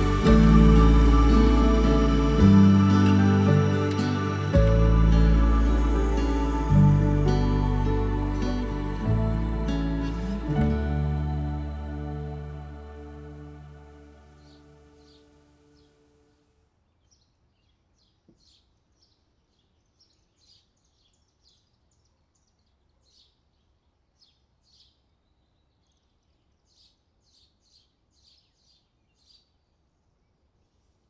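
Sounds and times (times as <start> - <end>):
low background hiss: 0.0 - 16.2.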